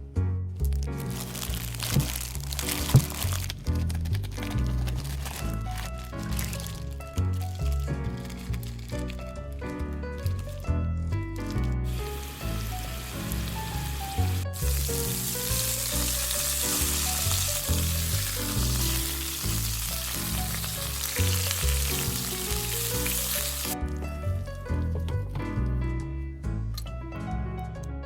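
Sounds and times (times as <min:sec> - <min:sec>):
background music with bass: 0:00.0 - 0:28.0
even hiss: 0:11.9 - 0:23.8.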